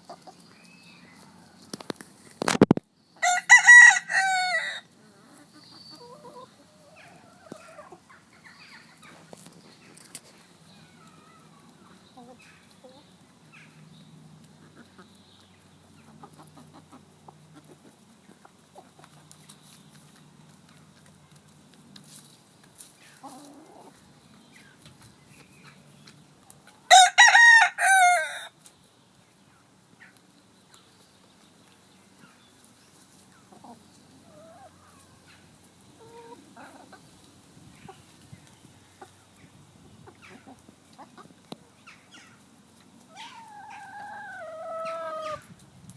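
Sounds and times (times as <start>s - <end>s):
chickens clucking: 0.0s - 45.7s
rooster crowing: 3.2s - 4.9s, 26.9s - 28.5s.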